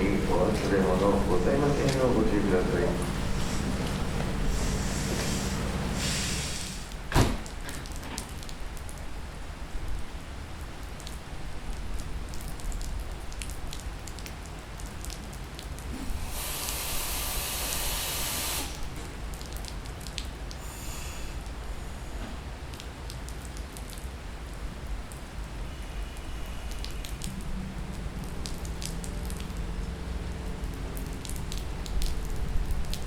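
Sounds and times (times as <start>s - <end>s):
heavy rain pouring: 0.0s - 33.0s
burst of hissing: 4.5s - 6.9s, 16.0s - 18.8s, 20.6s - 21.4s.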